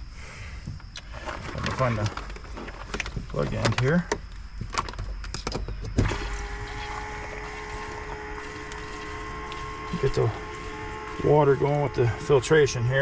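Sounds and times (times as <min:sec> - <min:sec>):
electric pump humming: 0:05.9 - 0:13.0.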